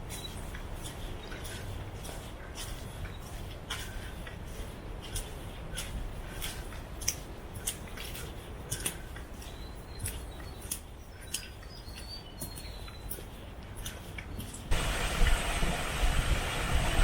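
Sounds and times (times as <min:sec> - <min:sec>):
crisp footsteps walking: 0:00.0 - 0:14.8
low wind rumble: 0:14.6 - 0:17.0.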